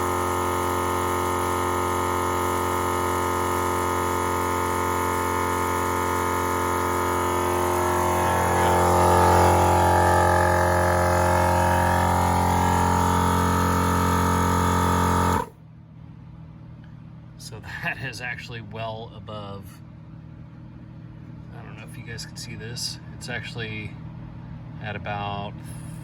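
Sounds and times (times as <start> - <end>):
portable air compressor droning: 0.0 - 15.6.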